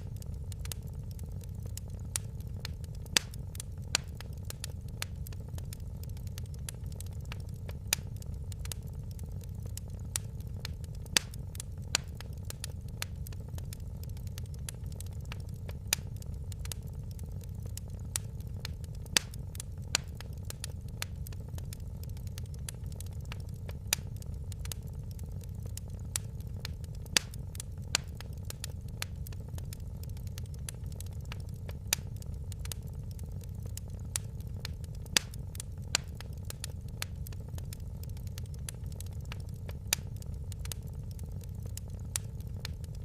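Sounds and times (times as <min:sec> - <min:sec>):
low rumble of flames: 0:00.0 - 0:43.0
wood fire crackling: 0:00.0 - 0:43.0.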